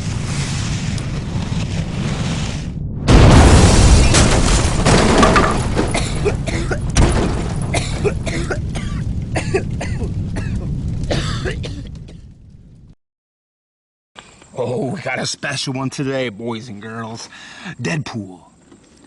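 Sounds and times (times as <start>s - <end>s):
fireworks crackling and popping: 0.0s - 12.6s.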